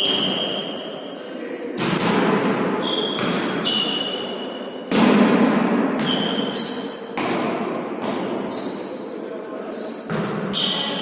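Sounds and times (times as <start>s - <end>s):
ball bouncing on indoor court: 0.0s - 0.7s, 1.8s - 9.0s, 9.7s - 11.0s
shoe squeaks: 2.8s - 4.7s, 6.0s - 7.2s, 8.4s - 11.0s.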